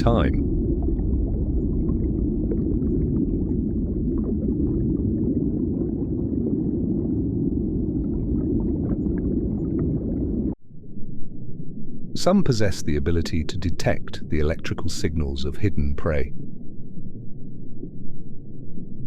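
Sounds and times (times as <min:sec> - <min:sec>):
underwater low rumble: 0:00.0 - 0:19.0.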